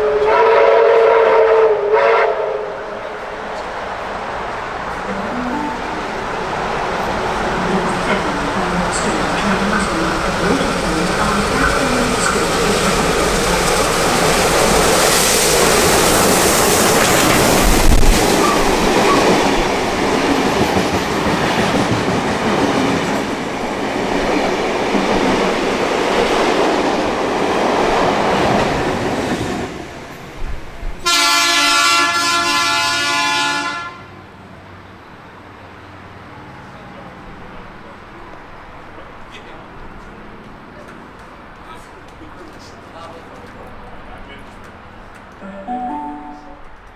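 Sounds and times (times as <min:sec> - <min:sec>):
train horn blast: 0:00.0 - 0:03.1, 0:31.0 - 0:34.2, 0:46.0 - 0:46.8
train wheels rushing on rails: 0:00.0 - 0:33.1, 0:34.4 - 0:45.4.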